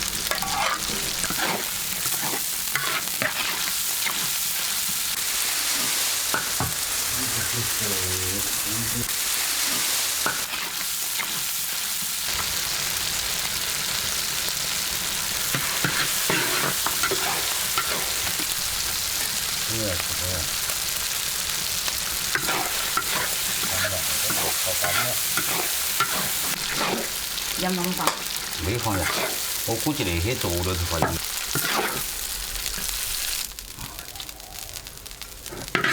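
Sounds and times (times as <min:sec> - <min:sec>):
spatula scraping a pan: 0:00.0 - 0:07.5, 0:09.2 - 0:11.5, 0:15.4 - 0:19.6, 0:22.0 - 0:29.6, 0:30.5 - 0:32.9, 0:35.4 - 0:35.9
food frying in hot oil: 0:00.0 - 0:35.9.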